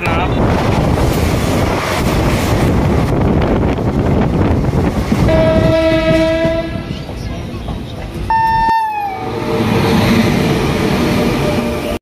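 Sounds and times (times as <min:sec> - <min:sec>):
train rushing and rumbling: 0:00.0 - 0:12.0
train horn: 0:05.3 - 0:06.9, 0:08.3 - 0:09.6.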